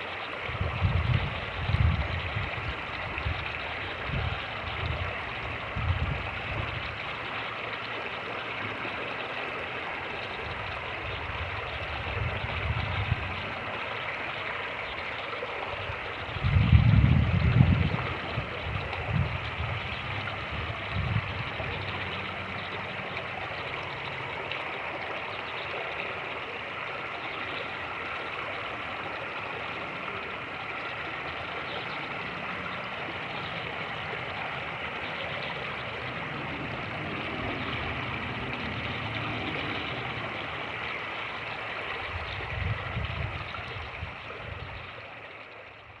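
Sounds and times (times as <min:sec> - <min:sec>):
creek water rushing: 0:00.0 - 0:46.0
wind buffeting microphone: 0:00.4 - 0:07.1, 0:10.4 - 0:13.7, 0:15.7 - 0:23.0, 0:42.0 - 0:45.0.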